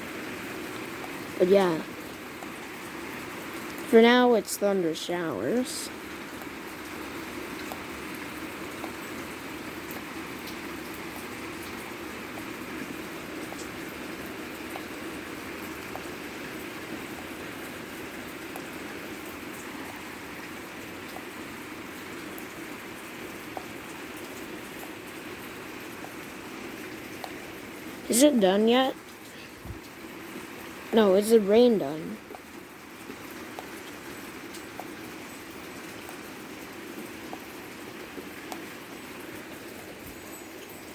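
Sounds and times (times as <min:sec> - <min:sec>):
heavy rain falling: 0:00.0 - 0:40.9
faint drip ticks: 0:05.9 - 0:28.0, 0:28.9 - 0:31.0, 0:32.0 - 0:40.9.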